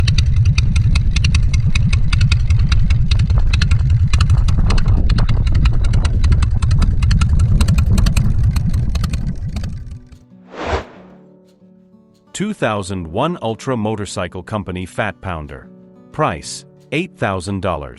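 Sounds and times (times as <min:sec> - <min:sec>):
motorcycle engine running loudly: 0:00.0 - 0:10.1
brief rushing sound: 0:10.5 - 0:11.2.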